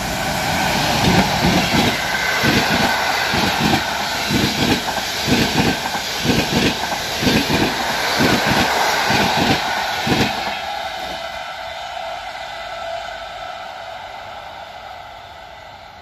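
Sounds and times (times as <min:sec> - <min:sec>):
train wheels rolling on rails: 0:00.0 - 0:16.0
wheels clacking over rail joints: 0:00.9 - 0:11.3.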